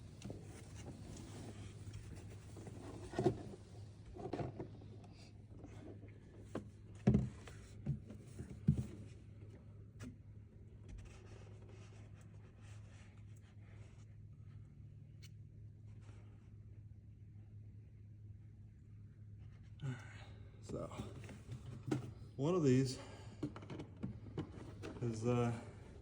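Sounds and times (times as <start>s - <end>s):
steady low hum: 0.0s - 26.0s
rubbing and rustling: 0.2s - 5.0s.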